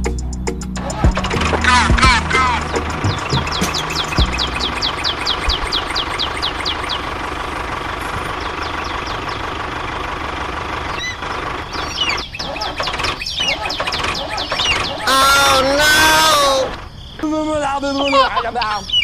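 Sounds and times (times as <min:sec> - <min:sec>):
bird chirping: 0:00.0 - 0:10.2, 0:10.8 - 0:19.0.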